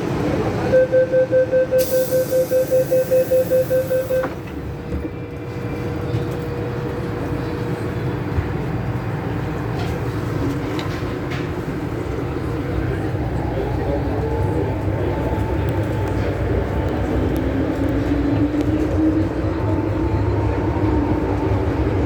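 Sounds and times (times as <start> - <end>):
metro train hum and rumble: 0.0 - 22.0
rapid door warning beeps: 0.7 - 4.4
train doors shutting click: 1.8 - 5.1.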